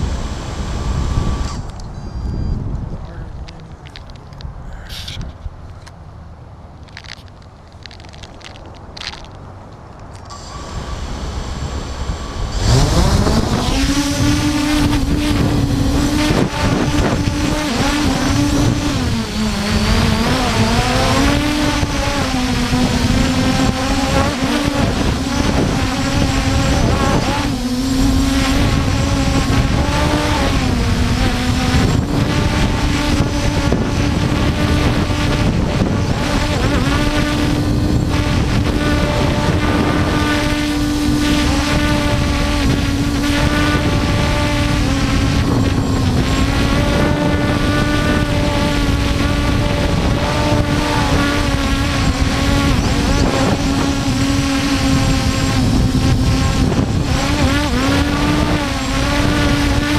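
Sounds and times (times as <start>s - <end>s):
quadcopter motors whining: 0.0s - 5.9s, 10.1s - 59.9s.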